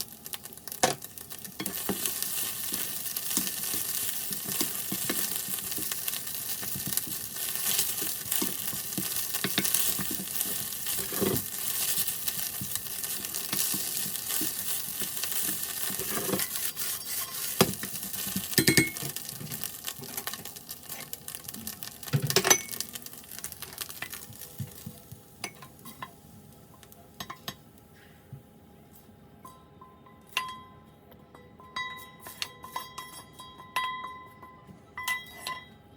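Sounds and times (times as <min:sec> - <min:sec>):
rice sizzling in an iron pan: 0:00.0 - 0:28.1, 0:31.9 - 0:34.4
spatula scraping pan: 0:01.6 - 0:19.2.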